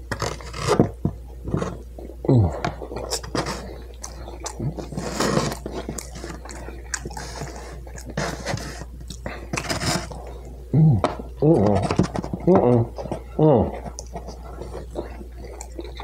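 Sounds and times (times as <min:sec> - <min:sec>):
low steady hum: 0:00.0 - 0:16.0
wet chewing and lip-smacking: 0:01.2 - 0:10.6, 0:12.3 - 0:16.0
person humming: 0:02.2 - 0:02.8, 0:10.7 - 0:13.8.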